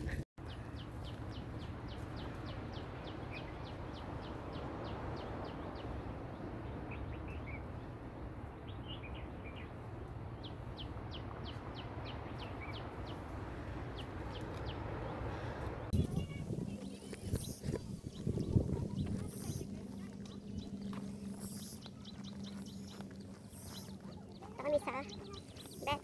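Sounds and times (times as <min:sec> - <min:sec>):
soft bird chirps: 0:15.9 - 0:26.0.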